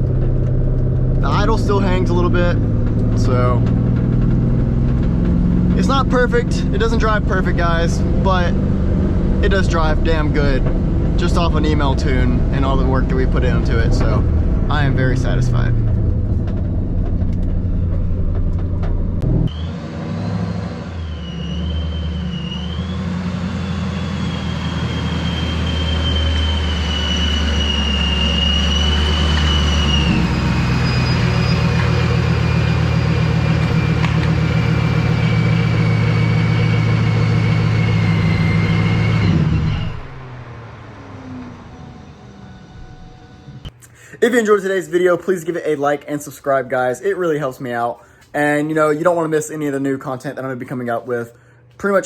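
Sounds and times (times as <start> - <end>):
supercharger whining: 0.0 - 44.0
car engine drone: 0.0 - 44.2.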